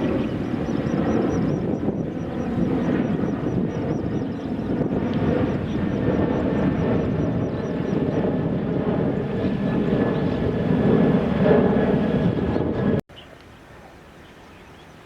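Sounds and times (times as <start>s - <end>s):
faint high whine: 0.0s - 8.3s
jet engines at takeoff power: 0.0s - 13.1s.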